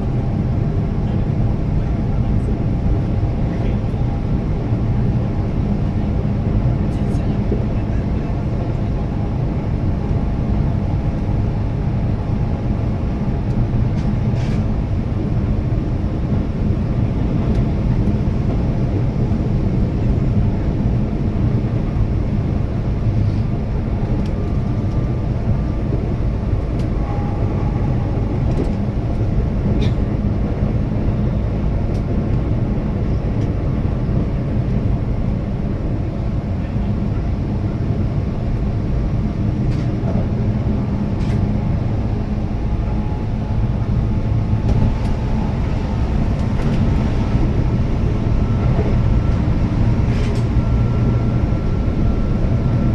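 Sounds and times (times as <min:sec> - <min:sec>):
train wheels rumbling: 0:22.2 - 0:52.9.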